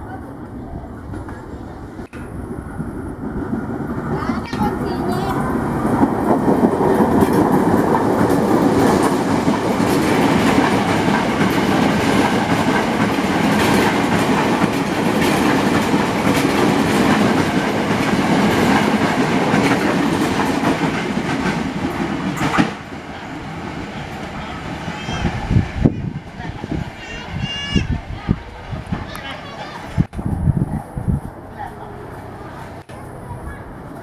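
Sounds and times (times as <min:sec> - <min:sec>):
train wheels clacking on rail joints: 0:04.1 - 0:23.0.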